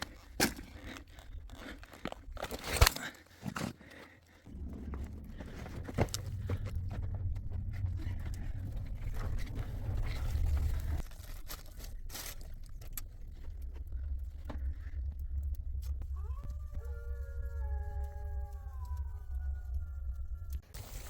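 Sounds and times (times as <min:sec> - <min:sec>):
low rumbling noise: 0:04.5 - 0:21.0.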